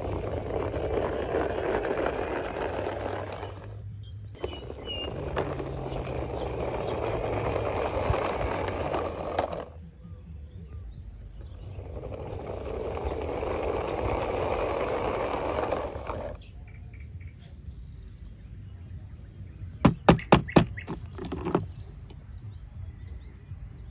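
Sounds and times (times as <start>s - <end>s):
toy car wheels rolling: 0.0s - 10.0s, 11.2s - 16.6s, 20.2s - 21.9s.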